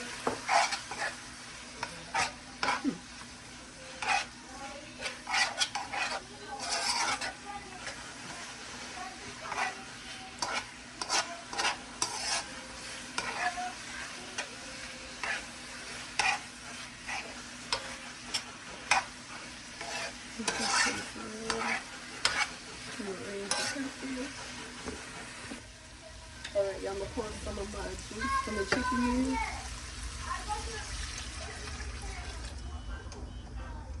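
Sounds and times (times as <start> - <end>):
utensil scraping a pot: 0.0 - 3.0, 3.8 - 25.5
food sizzling: 0.0 - 32.9.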